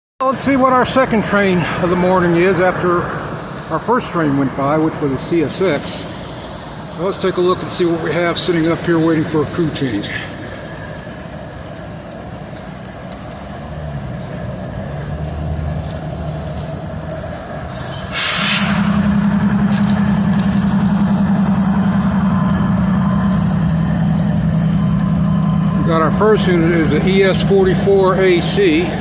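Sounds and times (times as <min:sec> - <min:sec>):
diesel locomotive idling: 0:00.2 - 0:29.0
air release hiss: 0:17.7 - 0:18.8.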